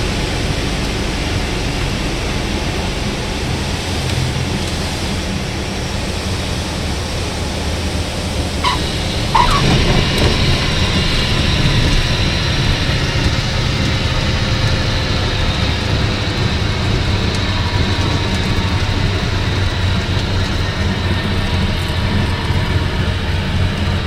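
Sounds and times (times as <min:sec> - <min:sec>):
aircraft engine and airflow noise: 0:00.0 - 0:24.0
tyres chirping on runway: 0:08.6 - 0:10.7.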